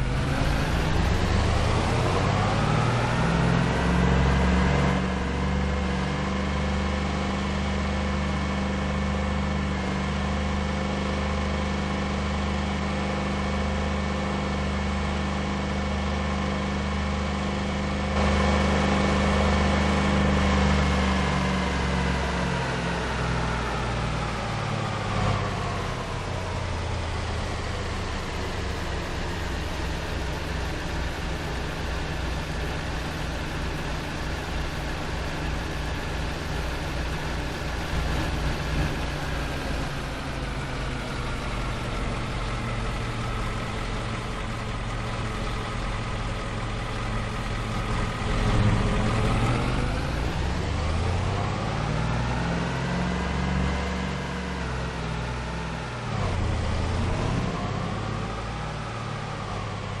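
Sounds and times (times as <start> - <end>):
pickup truck engine revving: 0.0 - 7.4, 18.2 - 60.0.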